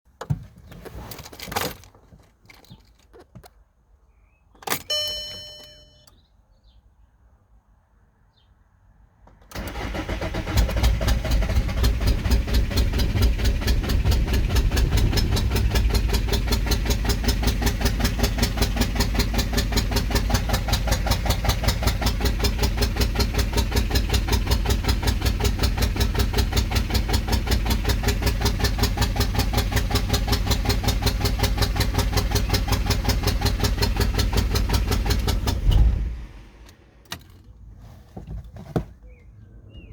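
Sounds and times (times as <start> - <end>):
short electronic beep: 4.8 - 6.2
starter motor cranking engine: 9.5 - 36.6.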